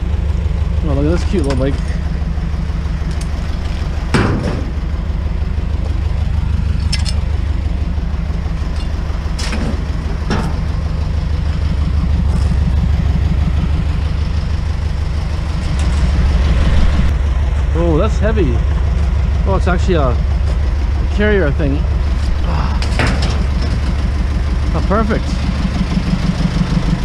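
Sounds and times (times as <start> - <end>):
truck engine idling: 0.0 - 27.0
sharp knocks: 4.1 - 4.8.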